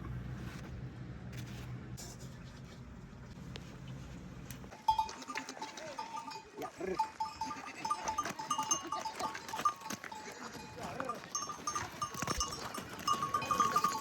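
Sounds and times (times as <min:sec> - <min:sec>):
livestock bells tinkling: 0:04.7 - 0:14.0
animals bleating: 0:04.9 - 0:14.0.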